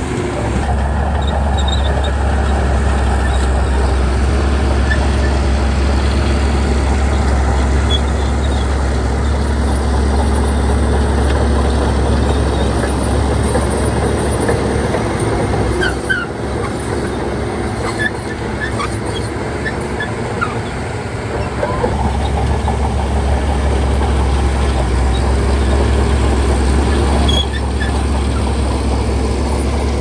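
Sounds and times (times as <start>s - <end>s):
bulldozer diesel engine: 0.0s - 30.0s
short high squeaks: 7.8s - 10.7s, 15.7s - 20.8s, 26.9s - 28.5s.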